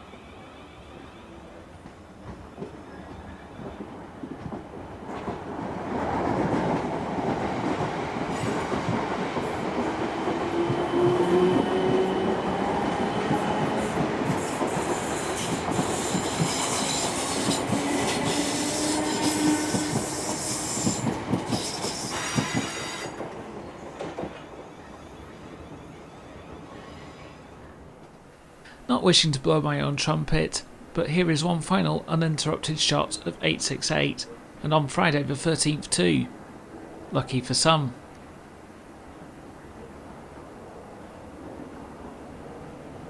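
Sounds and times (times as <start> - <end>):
train wheels clattering on track: 1.8 - 24.7
train wheel squeal: 10.6 - 23.2, 24.4 - 27.6.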